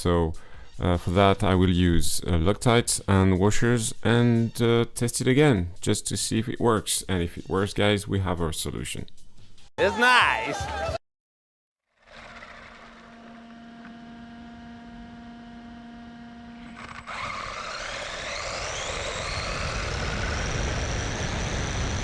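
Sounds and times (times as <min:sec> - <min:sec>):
electric motor whining: 0:12.0 - 0:22.0.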